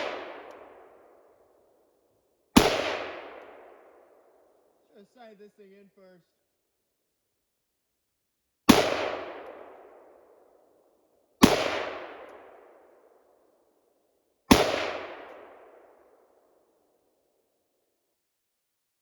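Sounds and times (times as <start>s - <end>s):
rifle shots with rolling echo: 0.0s - 5.4s, 8.7s - 17.2s.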